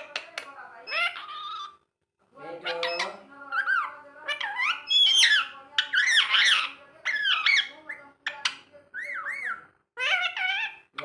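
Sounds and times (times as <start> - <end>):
parakeet squawking: 0.8 - 1.8, 2.4 - 11.0.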